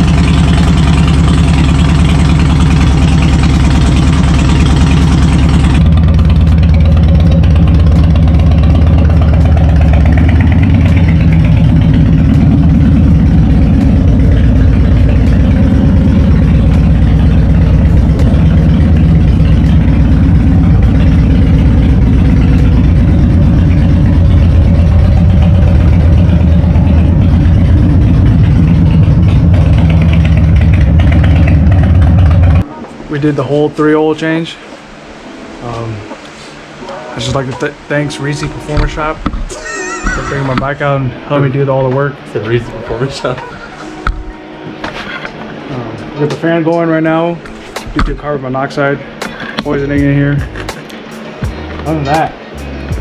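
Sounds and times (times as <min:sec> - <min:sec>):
motorcycle engine idling: 0:00.0 - 0:32.6, 0:49.2 - 0:53.0.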